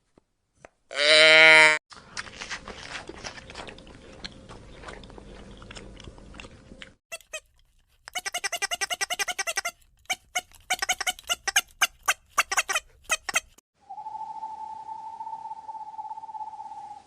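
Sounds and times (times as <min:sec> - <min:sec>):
animal chewing with crunching: 0:01.9 - 0:13.1.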